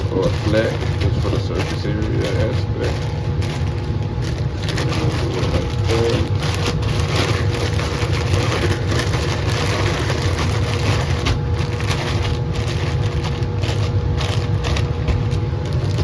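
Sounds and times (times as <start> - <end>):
fan running with low hum: 0.0 - 16.0
grain rustling in plastic bags: 0.0 - 16.0.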